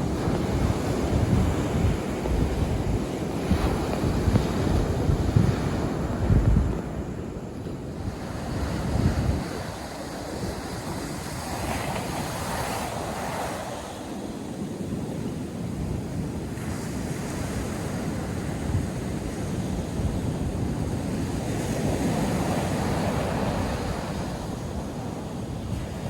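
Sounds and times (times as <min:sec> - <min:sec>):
surf breaking on sandy beach: 0:00.0 - 0:15.3
wind buffeting microphone: 0:00.0 - 0:26.0.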